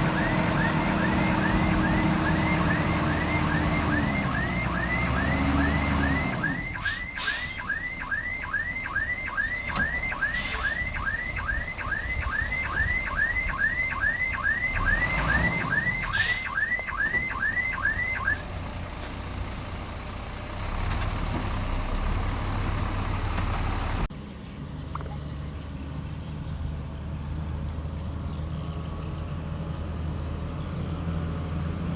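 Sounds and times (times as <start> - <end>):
truck reversing alarm chirping: 0.0 - 19.4
diesel engine running: 0.0 - 24.2.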